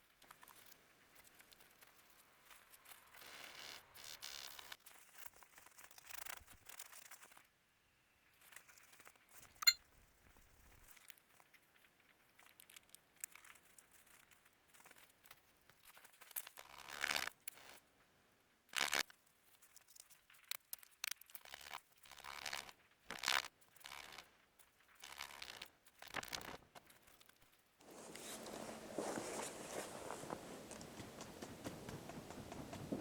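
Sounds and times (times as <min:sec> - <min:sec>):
rustling and crunching: 0:27.8 - 0:33.0.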